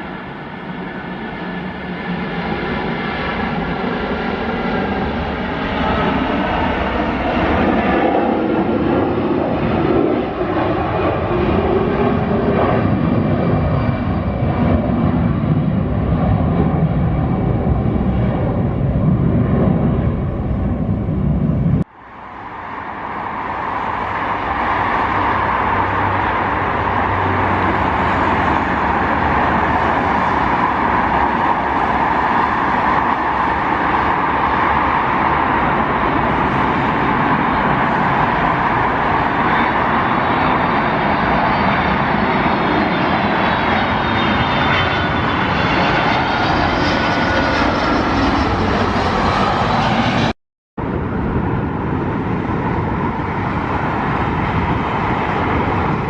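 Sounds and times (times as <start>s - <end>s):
jet engine roar: 0.0s - 56.0s.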